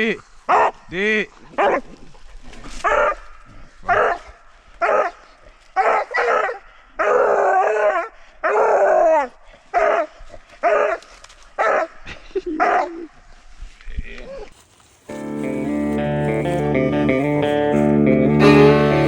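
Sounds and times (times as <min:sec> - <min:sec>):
dog barking: 0:00.5 - 0:00.8, 0:01.6 - 0:01.8, 0:02.8 - 0:03.2, 0:03.9 - 0:05.2, 0:05.8 - 0:09.0, 0:09.8 - 0:11.0, 0:11.6 - 0:12.0, 0:12.6 - 0:13.0.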